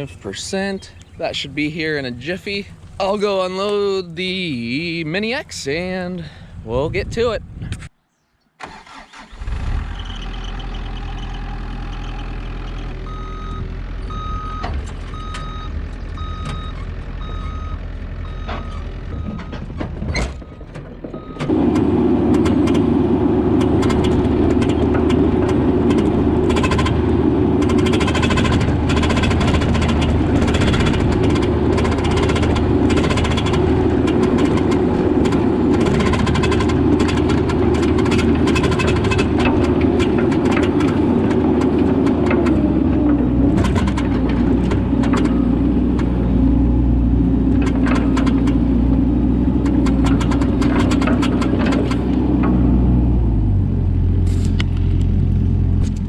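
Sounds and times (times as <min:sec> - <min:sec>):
excavator engine: 0:08.6 - 0:56.0
backup alarm beeping: 0:13.1 - 0:19.6.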